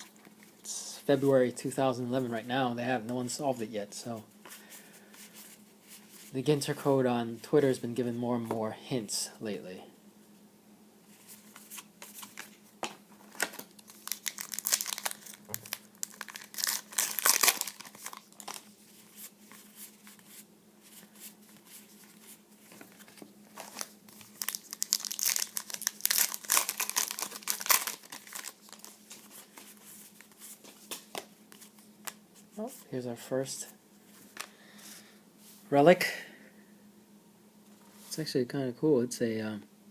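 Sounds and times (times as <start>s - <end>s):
cellophane wrappers crinkling and tearing: 13.2s - 20.1s, 22.7s - 31.2s.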